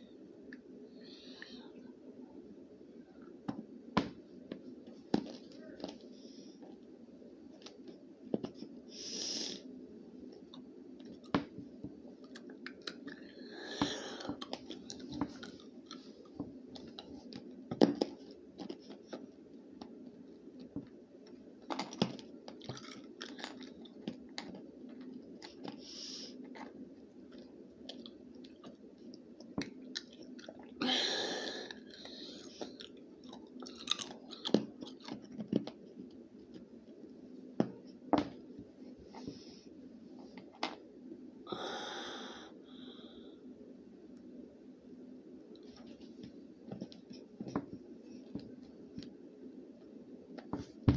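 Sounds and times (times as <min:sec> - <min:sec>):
person chewing crunchy snack: 0:21.7 - 0:25.7, 0:31.8 - 0:35.4.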